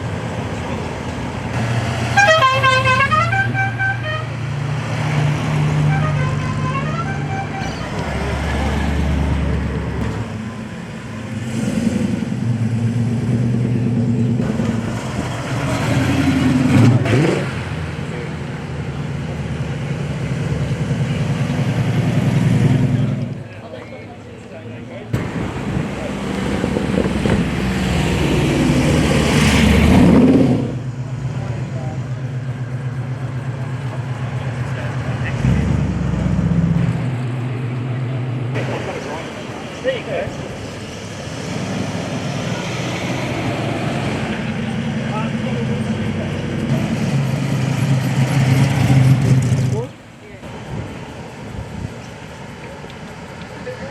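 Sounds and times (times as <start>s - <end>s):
musical car horn: 2.1s - 4.3s, 5.9s - 7.8s
vehicle engine revving: 11.1s - 23.4s, 25.2s - 50.9s.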